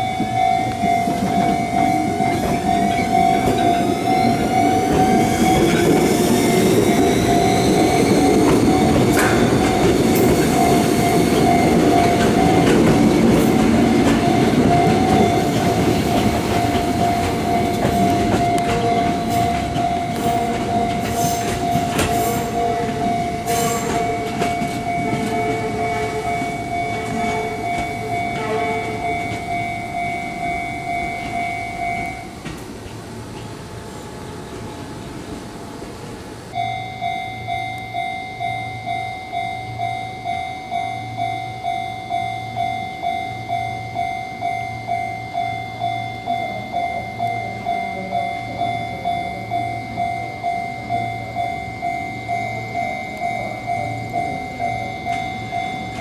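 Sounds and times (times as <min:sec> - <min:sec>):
steady ringing tone: 0:00.0 - 0:32.4, 0:36.5 - 0:56.0
train wheels clicking over rail joints: 0:00.0 - 0:33.5, 0:51.8 - 0:56.0
electric train passing: 0:00.0 - 0:56.0.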